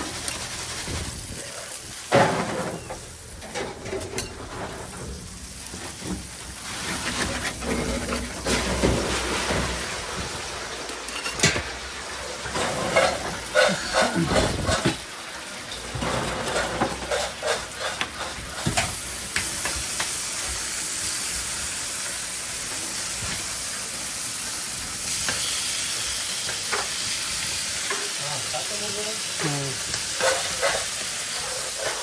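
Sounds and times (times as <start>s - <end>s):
food sizzling in hot fat: 0.0s - 32.0s
cooking utensils clattering: 1.8s - 19.8s, 29.2s - 32.0s.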